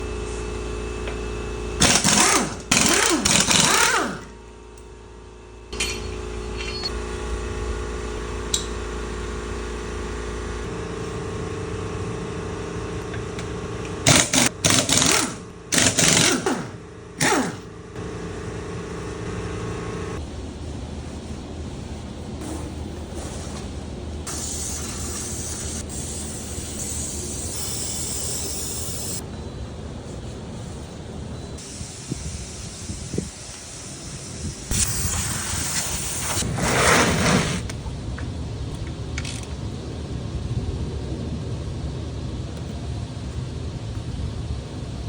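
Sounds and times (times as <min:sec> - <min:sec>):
machine hum: 0:00.0 - 0:31.8
rough machine bursts: 0:01.8 - 0:04.3, 0:14.0 - 0:20.2.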